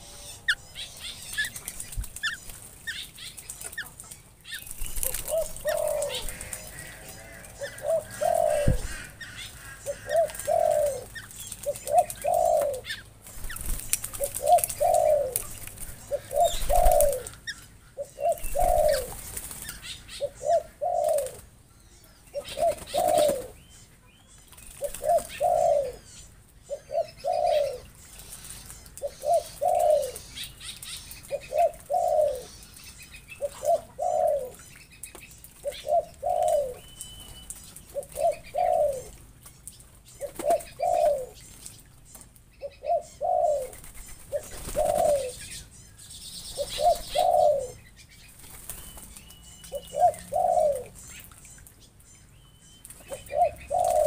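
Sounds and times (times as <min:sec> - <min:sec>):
wing flaps: 0:11.5 - 0:17.2.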